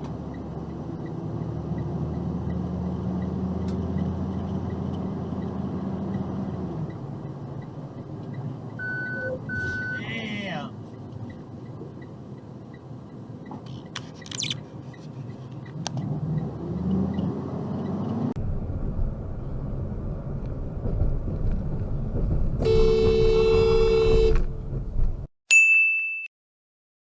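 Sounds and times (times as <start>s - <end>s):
traffic and road noise: 0.0s - 25.3s
car horn blast: 22.6s - 24.4s.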